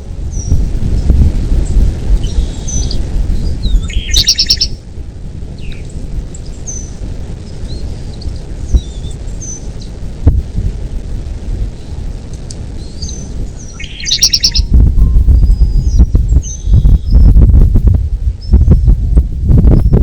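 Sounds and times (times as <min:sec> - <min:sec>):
birds chirping: 0:00.0 - 0:10.2, 0:11.7 - 0:17.6, 0:18.3 - 0:19.0
heavy low rumble: 0:00.0 - 0:20.0
bird rattling trill: 0:00.3 - 0:04.8, 0:12.8 - 0:17.4.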